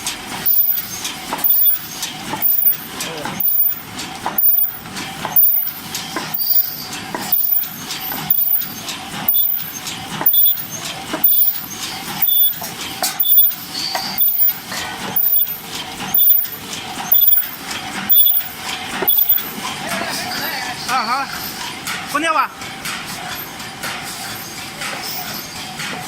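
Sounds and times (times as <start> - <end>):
machine mechanical clatter: 0.0 - 20.3.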